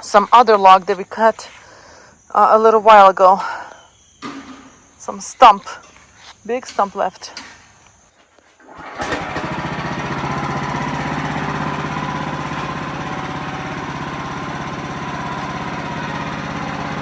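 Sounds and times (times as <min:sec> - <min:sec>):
sawmill engine chugging: 0:00.0 - 0:02.3, 0:08.6 - 0:17.0
saw blade whine: 0:00.0 - 0:17.0.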